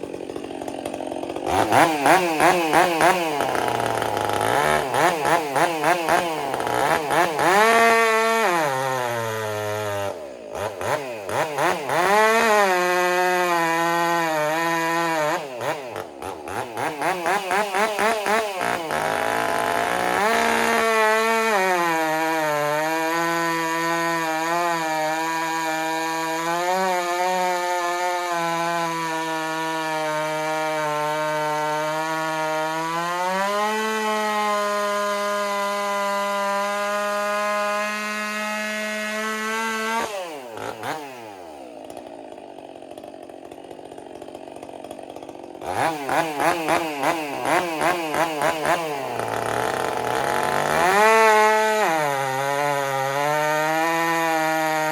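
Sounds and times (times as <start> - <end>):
chainsaw revving: 0.0 - 54.9.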